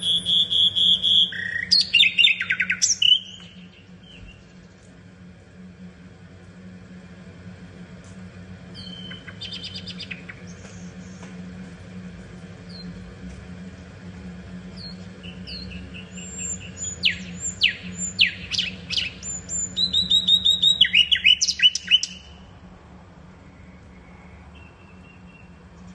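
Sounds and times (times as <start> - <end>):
nightingale singing: 0.0 - 4.6, 8.8 - 11.2, 14.8 - 22.4
steady low hum: 0.0 - 25.9.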